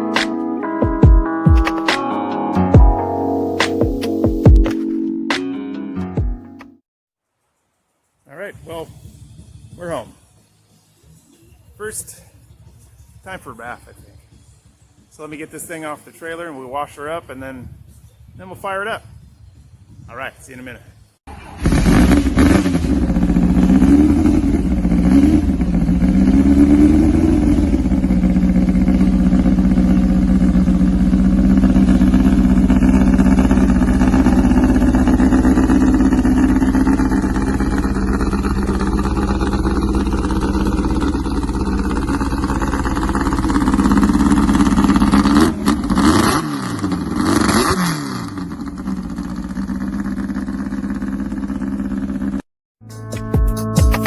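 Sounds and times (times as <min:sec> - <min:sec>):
car engine revving and idling: 0:21.3 - 0:52.4.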